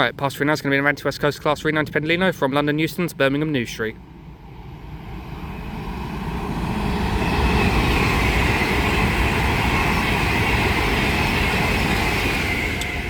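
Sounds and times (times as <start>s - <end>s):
high whine of train: 0.0s - 13.0s
train wheels rushing on rail: 4.0s - 13.0s.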